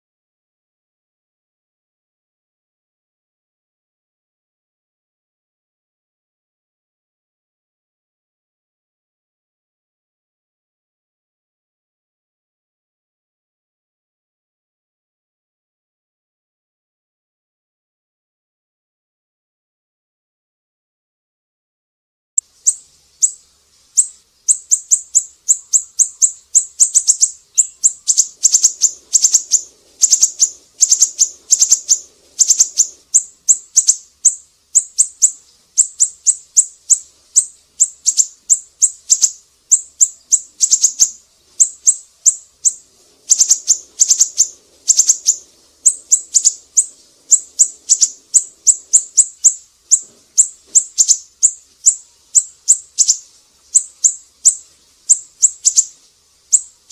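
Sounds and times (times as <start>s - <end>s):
songbird chirping: 22.4s - 56.9s.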